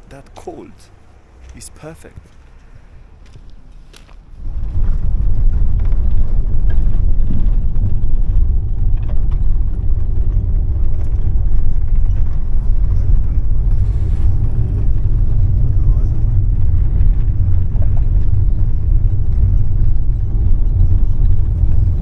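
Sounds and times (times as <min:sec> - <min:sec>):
road noise: 0:00.0 - 0:04.7
bus engine rumble: 0:00.0 - 0:22.0.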